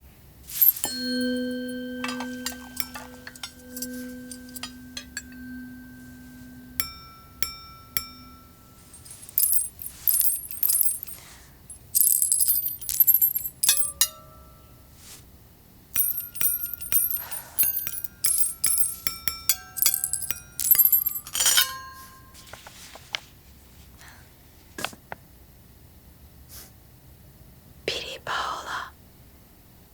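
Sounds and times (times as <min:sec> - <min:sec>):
metal jewelry clinking on glasses: 0:00.5 - 0:14.8, 0:16.0 - 0:22.6
long ringing glass tone: 0:00.6 - 0:11.2, 0:12.0 - 0:14.8, 0:16.0 - 0:22.4.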